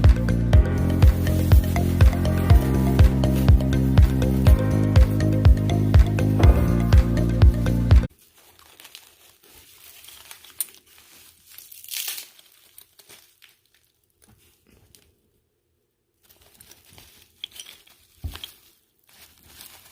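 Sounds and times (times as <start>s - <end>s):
packing material crinkling: 0.9s - 5.1s, 8.1s - 15.4s, 16.2s - 19.9s.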